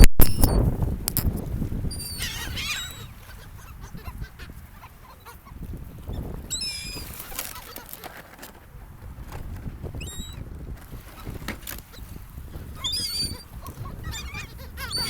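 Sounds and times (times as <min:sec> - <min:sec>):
seagulls calling: 0:01.8 - 0:08.2, 0:09.8 - 0:10.5, 0:11.1 - 0:15.0.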